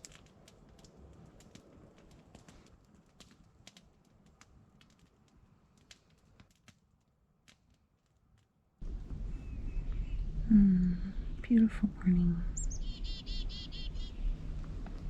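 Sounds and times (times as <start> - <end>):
campfire crackling and popping: 0.0 - 9.2
low outdoor rumble: 8.8 - 15.0.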